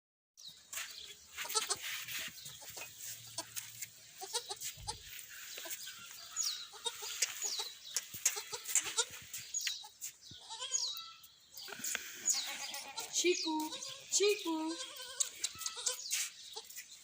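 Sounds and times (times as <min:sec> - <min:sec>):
goat kids bleating: 0:01.3 - 0:17.0
high chirps and clicks: 0:06.9 - 0:10.2.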